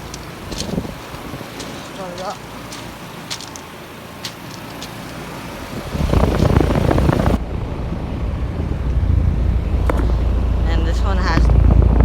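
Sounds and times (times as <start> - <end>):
heat pump low hum: 0.0 - 12.0.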